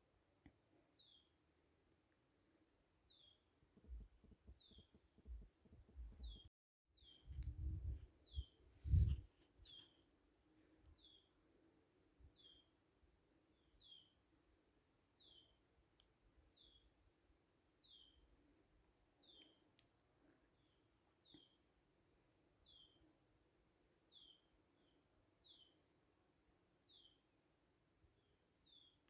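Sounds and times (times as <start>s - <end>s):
low rumbling thumps: 7.3s - 9.2s.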